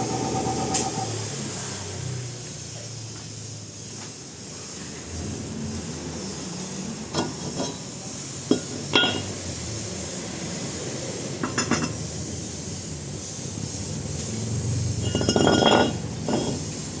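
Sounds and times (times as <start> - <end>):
steady background noise: 0.0 - 17.0
metal tools clinking: 7.2 - 7.9, 8.5 - 9.4, 15.0 - 16.9.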